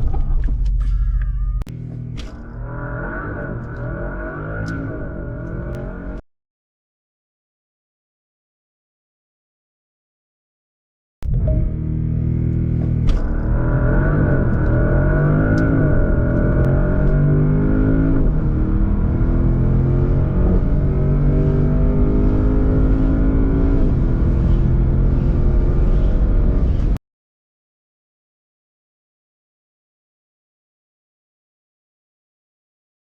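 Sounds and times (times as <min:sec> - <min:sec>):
car engine accelerating: 0:00.0 - 0:06.2, 0:11.2 - 0:27.0.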